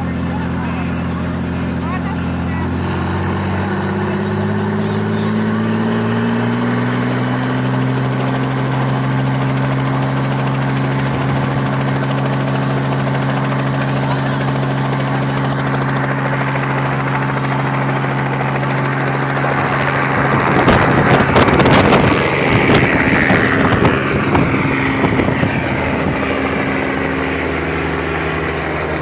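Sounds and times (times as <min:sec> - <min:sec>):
helicopter humming: 0:00.0 - 0:29.0
rushing buffeting noise with whine: 0:07.6 - 0:29.0.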